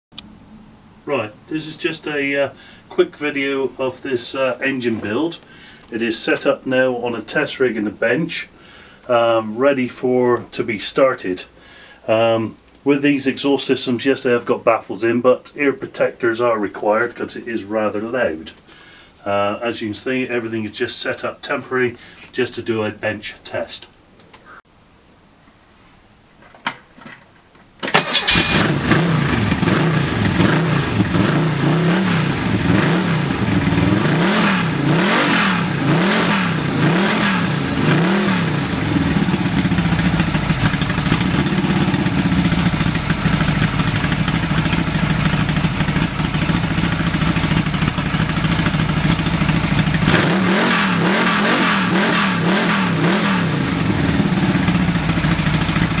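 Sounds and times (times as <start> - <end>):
car engine starting and revving: 27.8 - 56.0.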